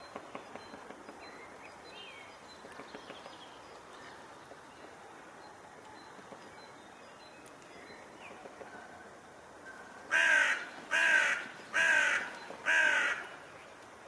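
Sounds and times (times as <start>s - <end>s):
steady outdoor hiss: 0.0s - 14.0s
woodpecker tapping on wood: 2.6s - 3.4s.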